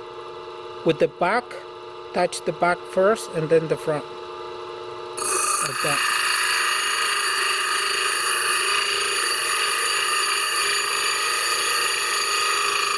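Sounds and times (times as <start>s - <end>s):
blade grinding on sharpening wheel: 5.2s - 12.9s.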